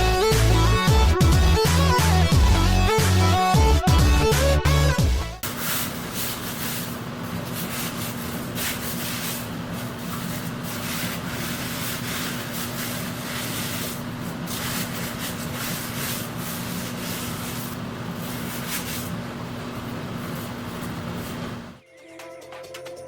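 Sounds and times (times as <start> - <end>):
sandpaper scraping a surface: 5.4 - 21.8.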